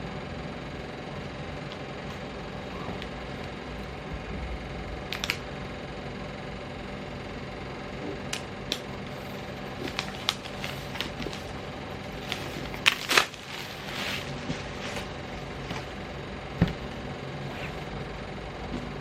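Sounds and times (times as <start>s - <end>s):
steady low hum: 0.0s - 19.0s
packaging clicks and rustles: 8.7s - 16.0s.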